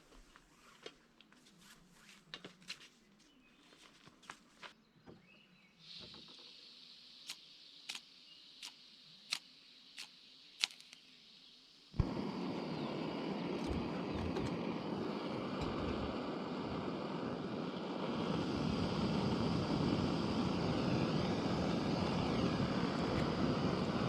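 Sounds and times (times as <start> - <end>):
faint hiss: 0.0 - 24.0
sharp clicks: 7.2 - 11.0.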